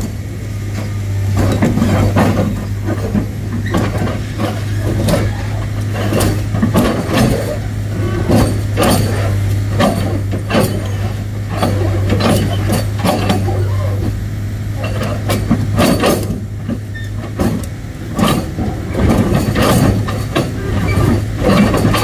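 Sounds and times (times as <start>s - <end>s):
diesel engine running: 0.0s - 22.0s
knocks and clatter: 0.8s - 13.8s, 14.8s - 22.0s.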